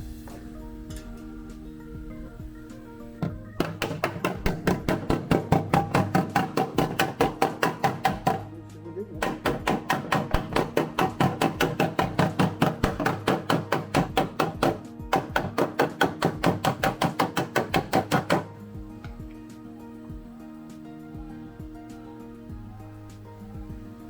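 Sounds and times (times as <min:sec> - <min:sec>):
background music: 0:00.0 - 0:24.0
hammer on metal panel: 0:03.2 - 0:08.6, 0:09.2 - 0:19.4.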